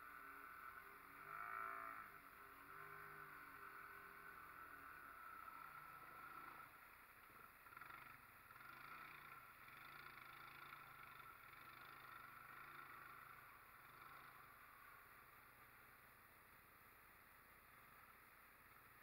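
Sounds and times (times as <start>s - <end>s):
faint atv engine running: 0.0s - 19.0s.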